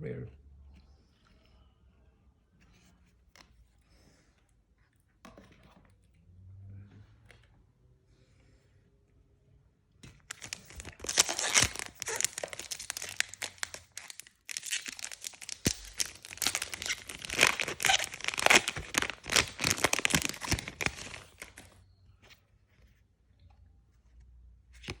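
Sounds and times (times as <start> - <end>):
foil wrapper tearing and crinkling: 10.3 - 21.8.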